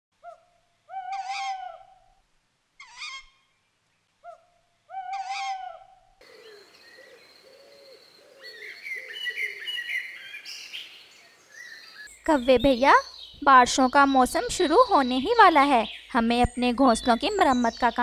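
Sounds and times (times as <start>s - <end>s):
drawn-out bird calls: 2.8s - 3.5s, 4.2s - 18.0s
many birds chirping: 6.2s - 18.0s.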